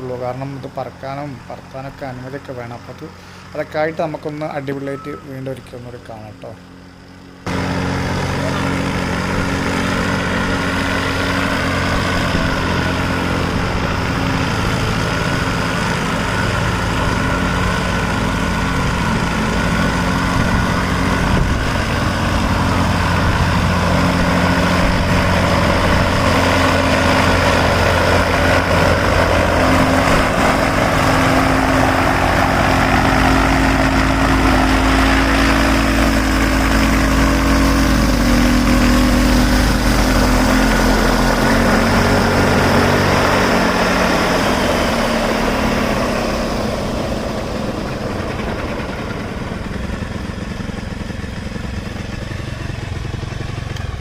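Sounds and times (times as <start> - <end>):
single-cylinder engine running: 0.0 - 54.0.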